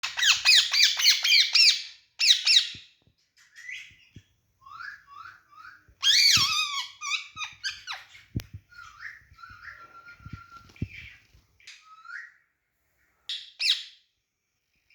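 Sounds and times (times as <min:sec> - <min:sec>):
parrot squawking and chirping: 0:00.0 - 0:09.8, 0:13.3 - 0:14.0.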